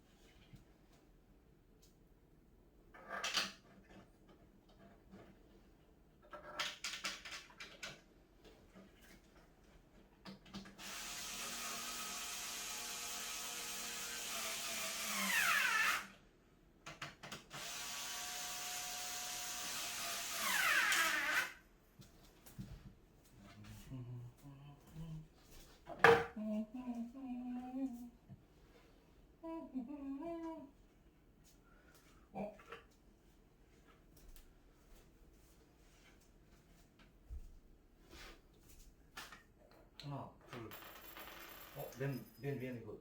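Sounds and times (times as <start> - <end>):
electric drill driving screws: 10.8 - 16.2, 17.5 - 21.6.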